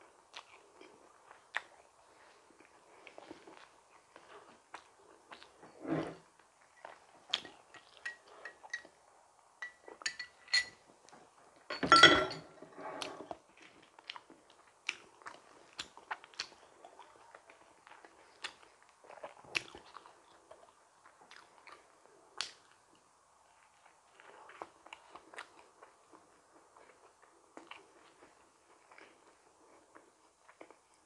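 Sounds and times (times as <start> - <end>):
wet chewing clicks and smacks: 0.3 - 2.4, 13.7 - 17.1, 17.8 - 23.0.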